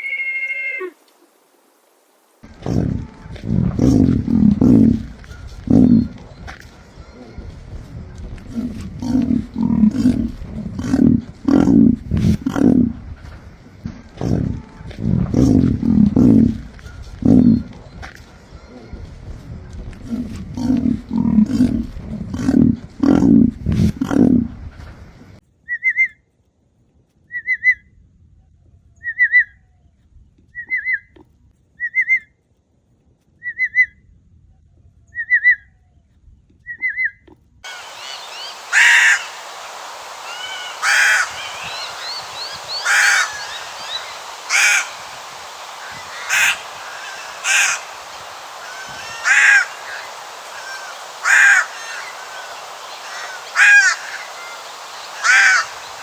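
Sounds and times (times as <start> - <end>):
faint bird chirps: 36.7 - 56.0
cuckoo harsh screeching calls: 37.7 - 56.0.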